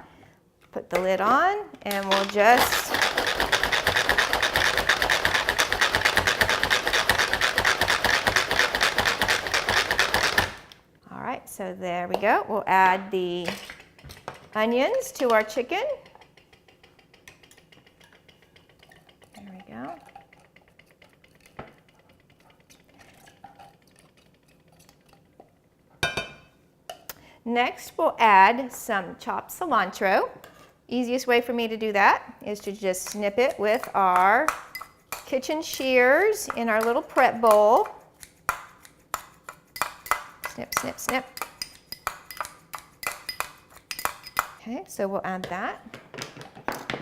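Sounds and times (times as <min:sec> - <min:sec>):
manual food processor clattering: 0:01.9 - 0:10.6
utensil scraping a bowl: 0:02.1 - 0:10.4, 0:14.7 - 0:25.3, 0:32.5 - 0:44.4.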